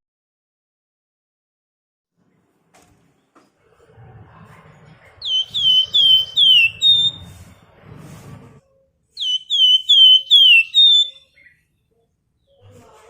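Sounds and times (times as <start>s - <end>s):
songbird whistling: 5.2s - 7.4s, 9.2s - 11.7s.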